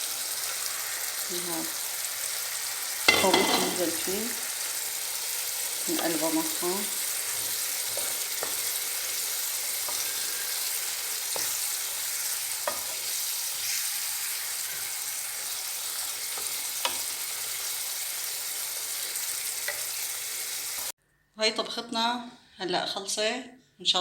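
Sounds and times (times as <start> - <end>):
food sizzling in a pan: 0.0 - 21.0
food being stirred: 2.0 - 20.7.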